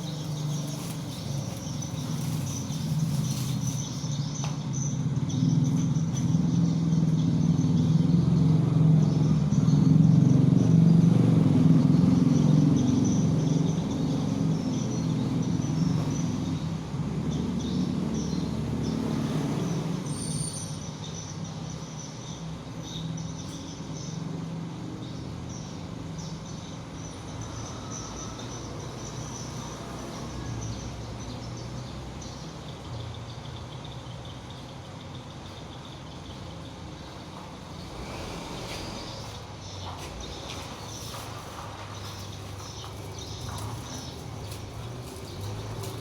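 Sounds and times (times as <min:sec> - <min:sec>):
vehicle engine running: 0:00.0 - 0:19.9, 0:32.4 - 0:46.0.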